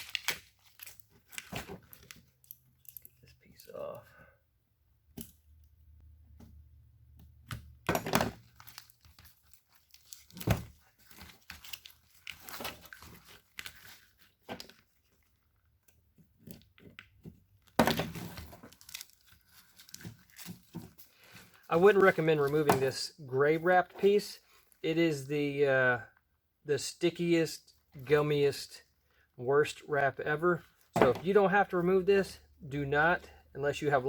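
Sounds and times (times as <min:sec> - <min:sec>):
tape ripping and crinkling: 0:00.0 - 0:02.6, 0:08.3 - 0:15.2, 0:18.0 - 0:21.1.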